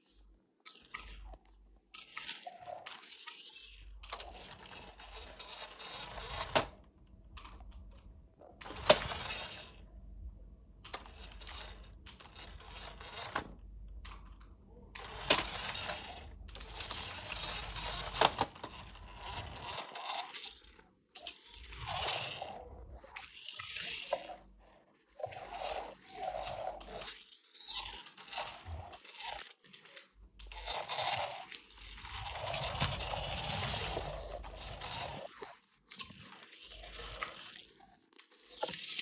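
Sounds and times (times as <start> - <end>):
toy trucks scraping and rattling: 0.1 - 9.9, 10.8 - 39.0
toys clacking together: 8.6 - 9.8, 10.8 - 22.4.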